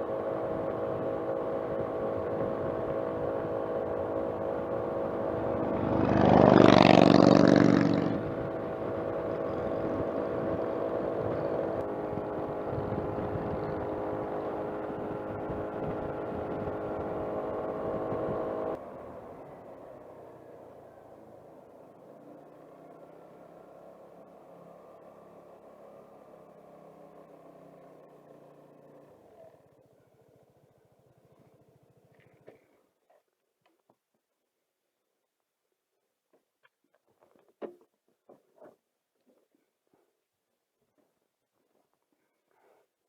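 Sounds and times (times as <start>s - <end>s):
scooter engine running: 0.0s - 32.8s.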